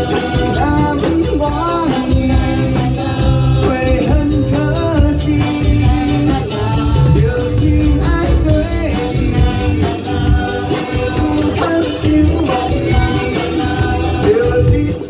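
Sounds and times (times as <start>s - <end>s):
live band playing upbeat song: 0.0s - 15.0s
person singing: 0.0s - 15.0s.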